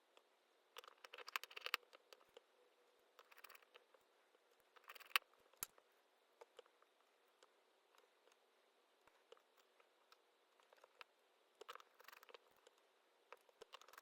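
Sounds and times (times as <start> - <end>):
small tools clicking on phone parts: 0.8 - 2.4, 3.2 - 3.9, 4.7 - 5.8, 9.1 - 14.0.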